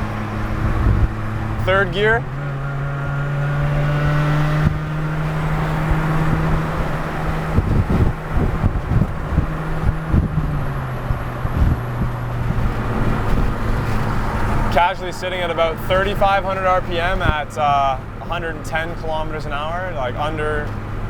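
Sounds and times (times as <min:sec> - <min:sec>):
car engine cruising: 0:00.0 - 0:21.0
road and wind rumble: 0:00.0 - 0:21.0.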